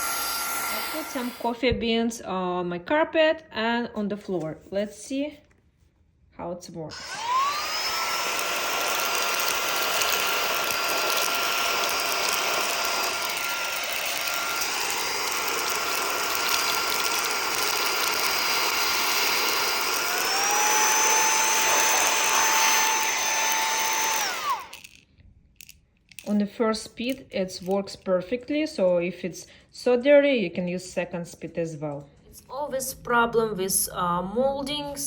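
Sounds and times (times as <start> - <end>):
handheld vacuum motor whine: 0.0 - 1.6, 6.9 - 25.0
coffee beans rattling in nozzle: 8.6 - 20.4, 21.8 - 25.0.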